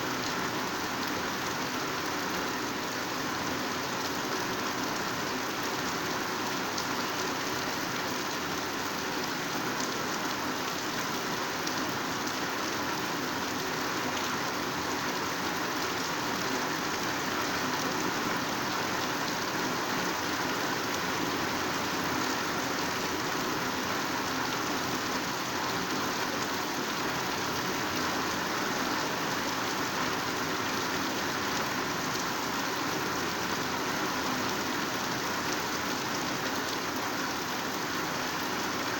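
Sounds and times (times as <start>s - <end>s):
heavy rain on foliage: 0.0s - 38.9s.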